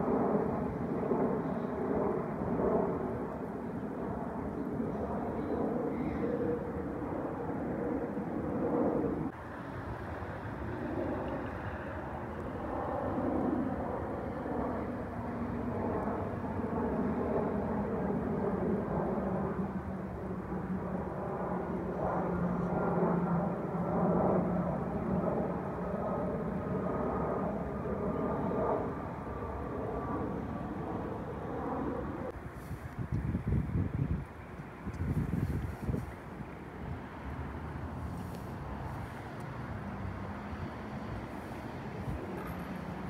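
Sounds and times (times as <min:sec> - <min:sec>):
jet engine rumble and whine: 0:00.0 - 0:43.0.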